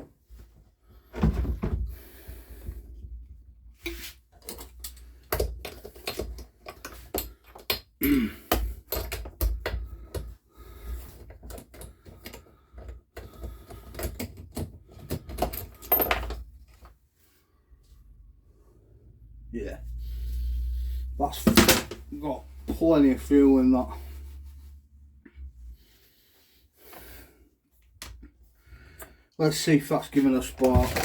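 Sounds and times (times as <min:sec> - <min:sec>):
tools clattering on a workbench: 0:03.9 - 0:10.3, 0:11.2 - 0:16.9, 0:21.4 - 0:22.1, 0:30.2 - 0:31.0.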